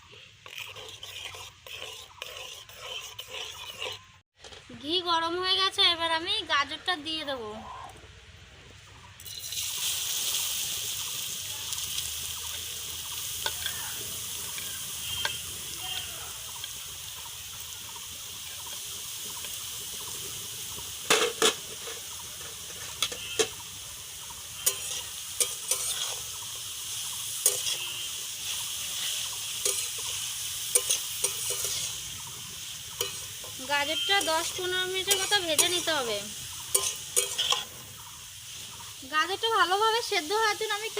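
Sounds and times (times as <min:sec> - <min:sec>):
spatula scraping pan: 0:00.0 - 0:04.2, 0:13.3 - 0:16.6, 0:21.1 - 0:37.8
carrot sizzling in hot oil: 0:00.0 - 0:40.9.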